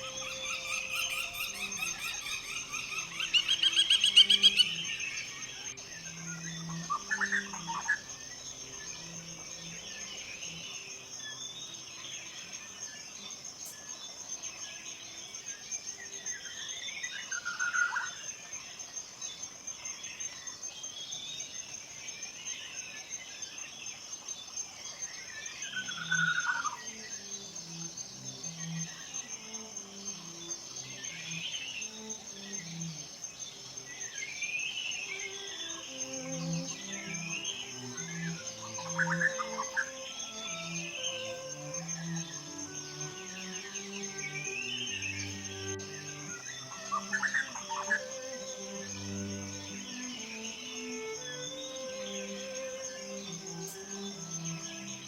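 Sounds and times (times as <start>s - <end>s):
fast loud bird trill: 0.0s - 5.3s
forest birds calling: 0.0s - 55.0s
high insect buzz: 0.0s - 55.0s.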